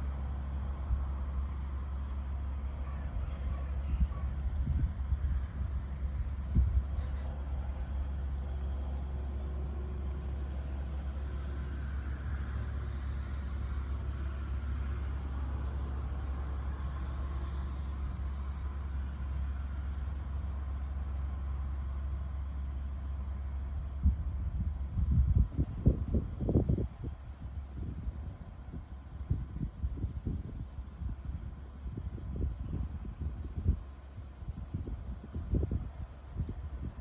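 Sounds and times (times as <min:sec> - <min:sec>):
constant low rumble: 0:00.0 - 0:37.0
insects chirping: 0:00.0 - 0:37.0.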